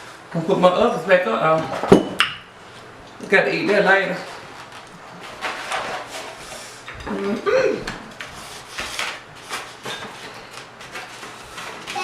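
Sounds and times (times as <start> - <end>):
dishes and containers clattering: 1.6 - 2.5, 3.2 - 12.0
person exclaiming: 7.1 - 7.9.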